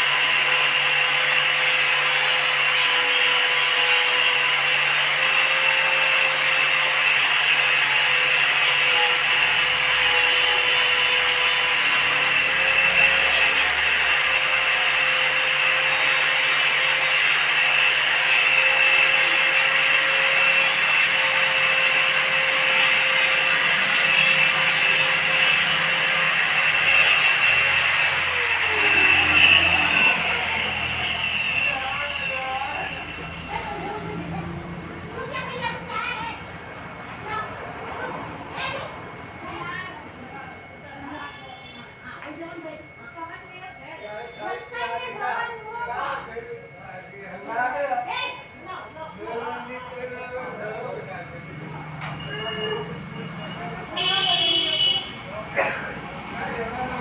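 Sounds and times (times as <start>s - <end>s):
power tool motor whining: 0.0s - 36.8s.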